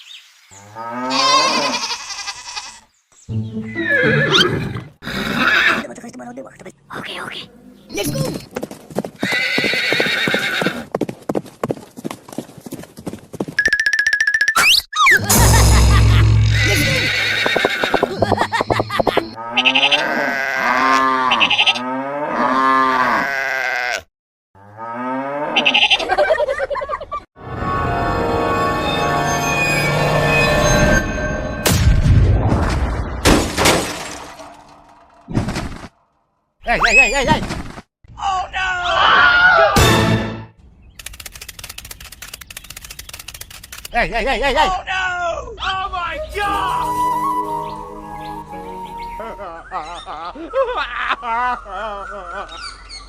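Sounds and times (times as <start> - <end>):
music: 3.3 - 3.9, 27.4 - 30.8, 39.8 - 40.5, 46.3 - 49.4.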